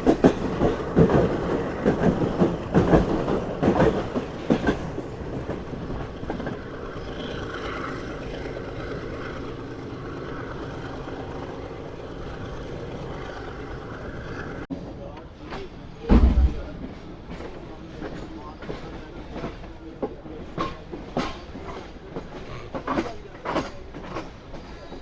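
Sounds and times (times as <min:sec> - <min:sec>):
train running rumble: 0:00.0 - 0:25.0
train wheels clacking over joints: 0:00.0 - 0:25.0.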